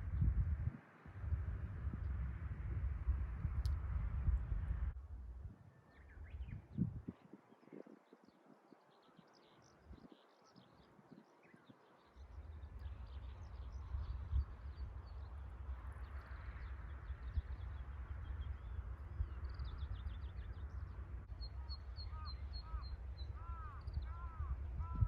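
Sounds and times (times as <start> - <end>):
wind rumble on microphone: 0.0 - 25.0
small birds chirping: 6.0 - 25.0.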